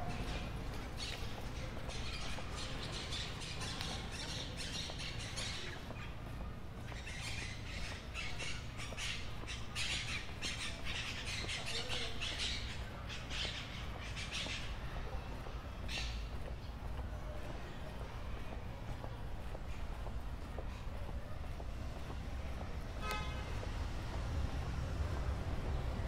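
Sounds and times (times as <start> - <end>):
low city rumble: 0.0 - 26.0
birds calling: 0.1 - 17.0.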